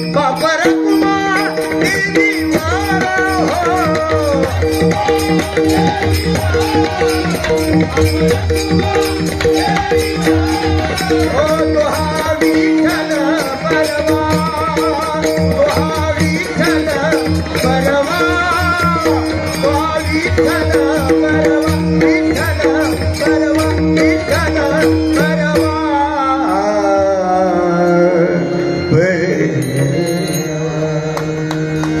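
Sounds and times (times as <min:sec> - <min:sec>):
hand drum beat: 0:00.1 - 0:25.7.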